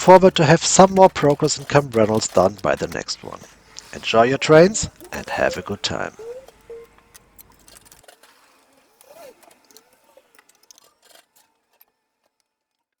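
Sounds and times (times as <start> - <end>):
short chirps and clicks: 1.0 - 8.0.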